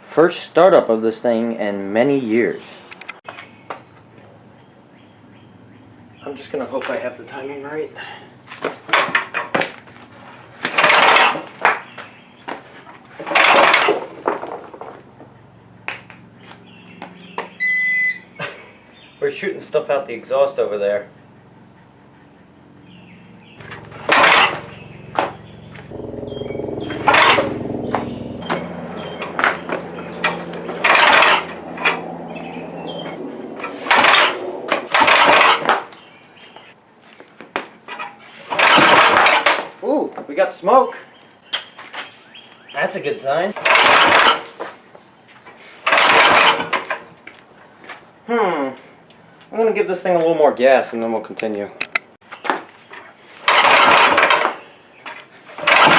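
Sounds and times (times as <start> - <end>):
tractor engine cranking: 10.6 - 11.9, 13.0 - 15.8, 22.8 - 36.1, 37.9 - 39.7, 43.6 - 44.7, 45.8 - 47.3, 53.4 - 55.9
short beep: 17.6 - 18.3
steady hum: 23.6 - 35.2
whooshing exhaust bursts: 23.6 - 35.9.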